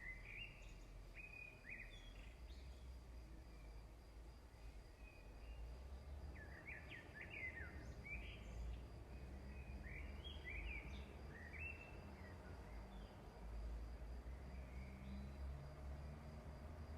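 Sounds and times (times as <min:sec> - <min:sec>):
faint bird chirps: 0:00.0 - 0:03.8, 0:04.4 - 0:13.2.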